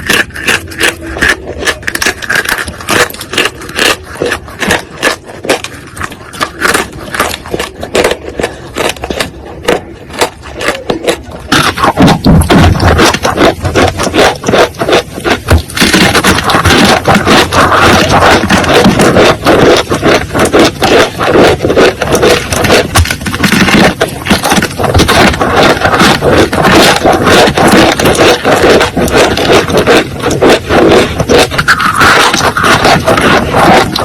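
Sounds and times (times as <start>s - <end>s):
loud scraping and rubbing: 0.0s - 34.0s.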